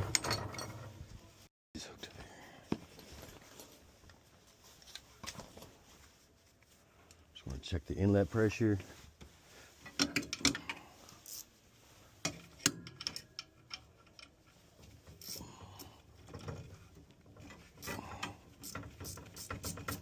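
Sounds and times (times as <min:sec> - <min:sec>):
clicks and knocks on metal fittings: 0:09.8 - 0:10.8, 0:12.2 - 0:20.0.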